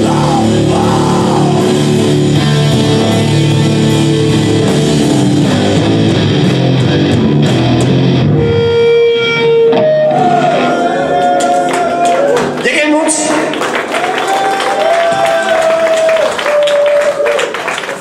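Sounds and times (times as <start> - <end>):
electric guitar: 0.0 - 12.6
live rock band: 0.0 - 17.2.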